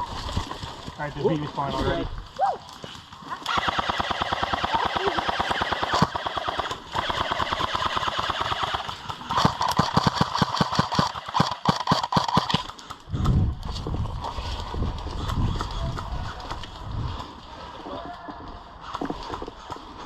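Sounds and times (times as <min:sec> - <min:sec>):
airsoft gun full-auto bursts: 0:03.5 - 0:12.7.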